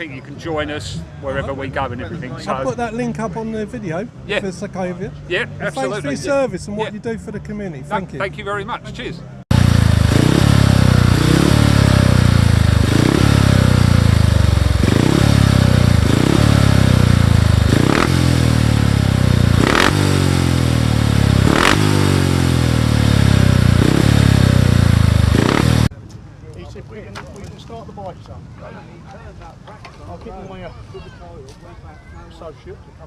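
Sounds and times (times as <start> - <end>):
motorcycle engine revving: 9.5 - 25.9.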